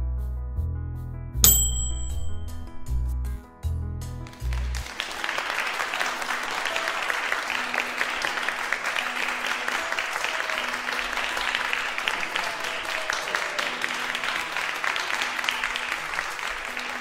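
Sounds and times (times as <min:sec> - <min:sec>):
applause: 0:04.2 - 0:17.0.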